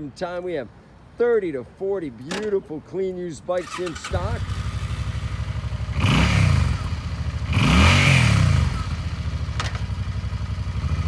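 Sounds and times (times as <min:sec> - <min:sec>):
sharp click: 0:02.2 - 0:02.7
motorcycle engine idling and revving: 0:03.6 - 0:11.0.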